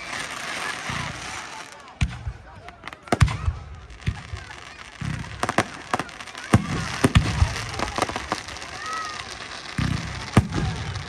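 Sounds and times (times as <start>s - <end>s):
fireworks bangs and crackles: 0.0s - 11.0s
spectators' voices: 0.0s - 11.0s.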